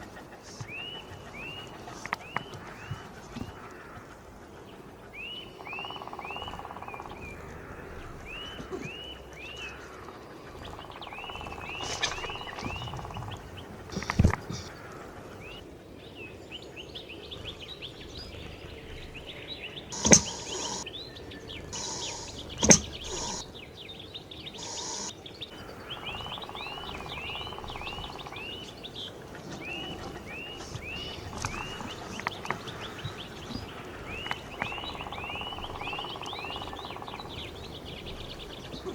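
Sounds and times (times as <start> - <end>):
small birds chirping: 0.0 - 38.9
sharp knocks: 20.0 - 20.8, 21.8 - 23.4.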